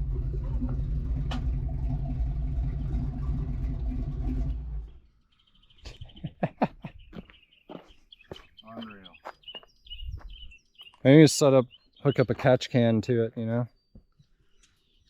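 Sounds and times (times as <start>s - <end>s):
car engine idling: 0.0s - 5.0s
birds chirping: 4.8s - 15.0s.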